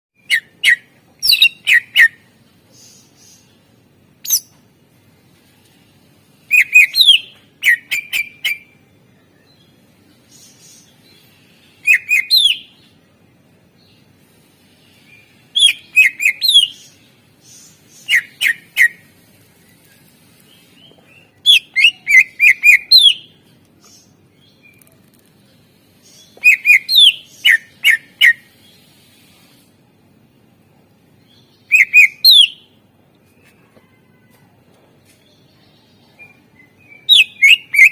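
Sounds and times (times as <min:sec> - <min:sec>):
bird singing sharp chirps: 0:31.6 - 0:32.7.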